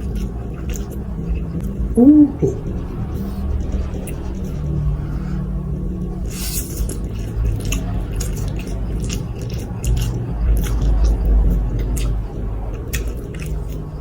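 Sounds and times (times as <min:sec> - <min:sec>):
steady low hum: 0:00.0 - 0:14.0
mouth clicks and smacks: 0:02.0 - 0:02.7.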